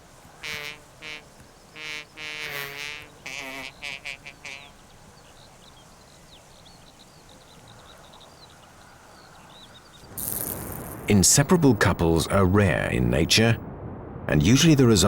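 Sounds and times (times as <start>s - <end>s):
small birds chirping: 0.0s - 11.0s
croaking calls: 0.4s - 5.3s
rushing hiss: 10.1s - 11.1s.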